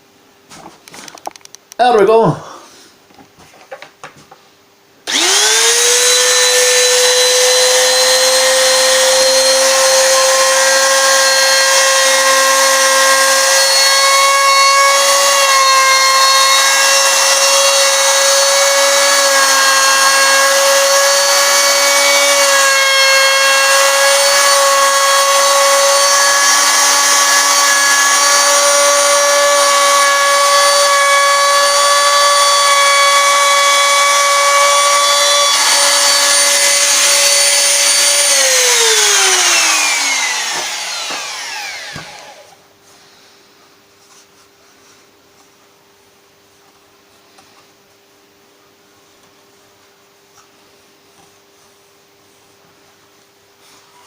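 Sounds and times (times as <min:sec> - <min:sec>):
router motor whining: 0:05.1 - 0:42.6.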